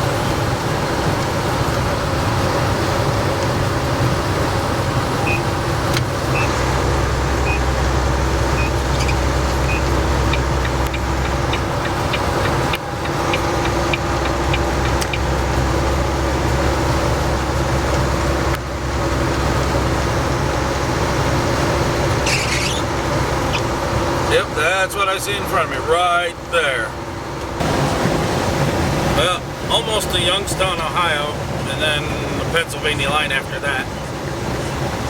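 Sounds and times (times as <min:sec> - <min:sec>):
truck engine hum: 0:00.0 - 0:35.0
tyre and road noise: 0:00.0 - 0:35.0
high beeps: 0:07.4 - 0:07.6, 0:08.6 - 0:08.8.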